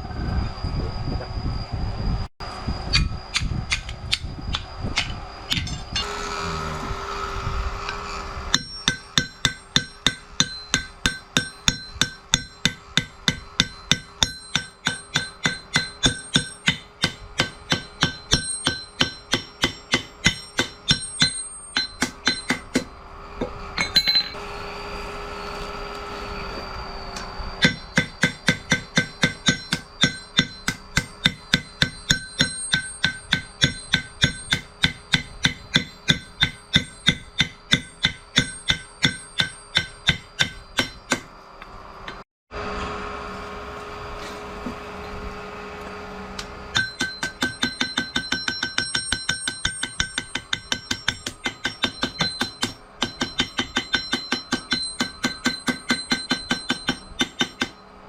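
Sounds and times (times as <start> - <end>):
hammer striking metal: 8.5 - 24.4, 27.6 - 41.3, 46.7 - 57.9.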